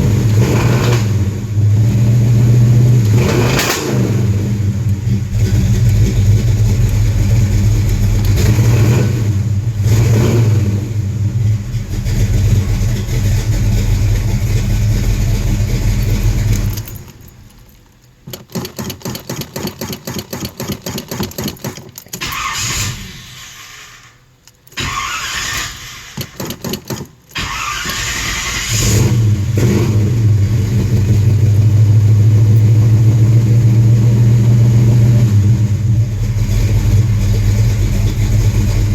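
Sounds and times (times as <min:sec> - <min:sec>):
car engine running: 0:00.0 - 0:17.5, 0:28.6 - 0:38.9
starter cranking: 0:05.3 - 0:08.8, 0:11.9 - 0:29.3.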